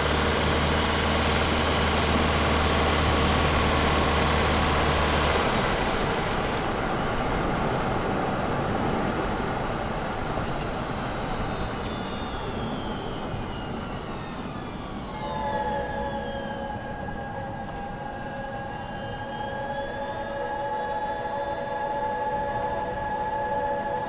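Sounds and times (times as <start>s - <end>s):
car engine hum: 0.0s - 7.9s
electric drive whine: 0.0s - 24.0s
steady higher tones: 15.1s - 24.0s.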